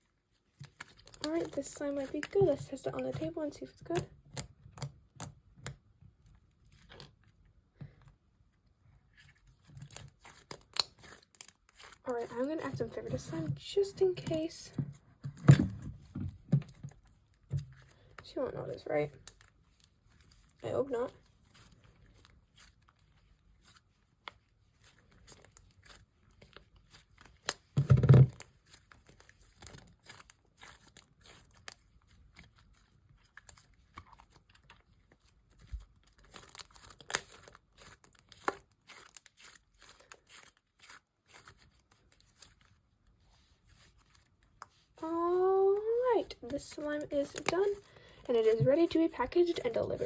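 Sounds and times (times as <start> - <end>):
slime crackling and popping: 23.6 - 42.6
loud slime squish: 28.4 - 42.6.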